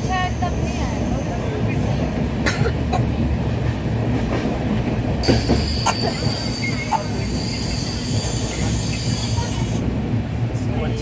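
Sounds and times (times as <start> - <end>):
train wheels rumbling on rails: 0.0 - 11.0
metallic wheel squeal: 5.2 - 9.8.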